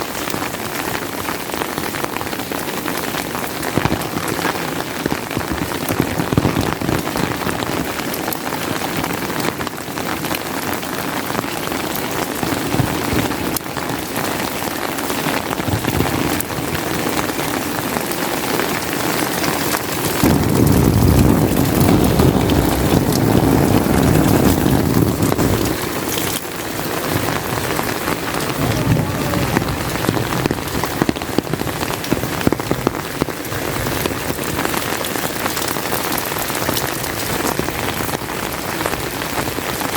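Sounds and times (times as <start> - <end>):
rain pattering: 0.0 - 39.9
thunder rumbling: 15.2 - 39.3.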